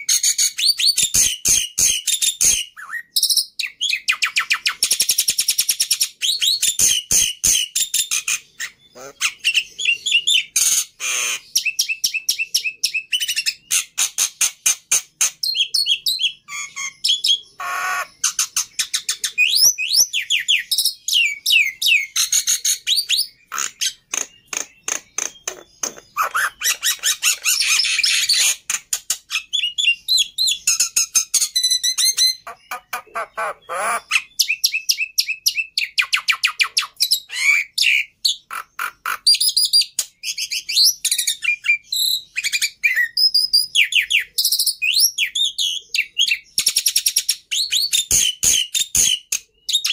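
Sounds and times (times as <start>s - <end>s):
bird singing chatter and whistles: 0.0s - 49.9s
bird harsh squawk: 6.8s - 11.9s, 16.5s - 20.0s, 23.5s - 28.7s, 31.8s - 34.6s.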